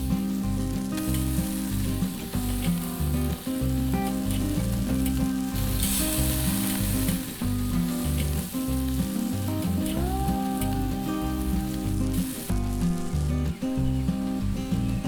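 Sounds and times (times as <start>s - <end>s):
background music with bass line: 0.0s - 15.0s
meat sizzling on charcoal grill: 0.0s - 15.0s.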